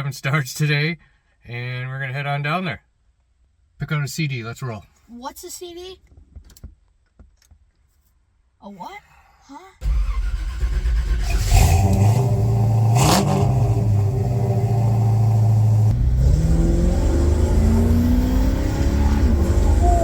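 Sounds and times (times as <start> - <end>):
car engine revving and accelerating: 10.1 - 20.0.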